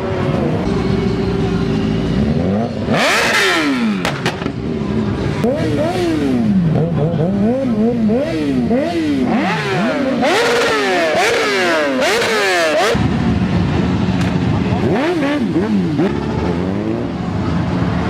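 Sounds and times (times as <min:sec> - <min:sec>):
motorcycle engines revving: 0:00.0 - 0:18.0.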